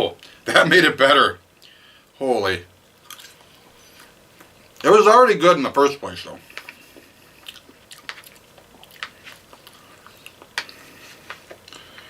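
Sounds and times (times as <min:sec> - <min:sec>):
person chewing food: 0:03.0 - 0:04.8, 0:06.4 - 0:12.0.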